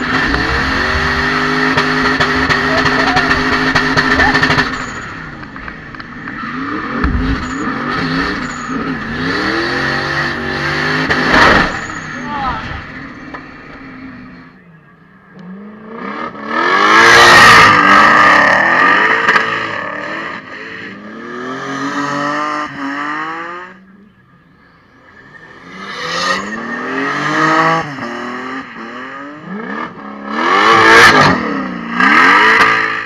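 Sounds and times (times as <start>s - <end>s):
tyres screeching: 0.0s - 9.6s
car engines revving: 0.0s - 33.0s.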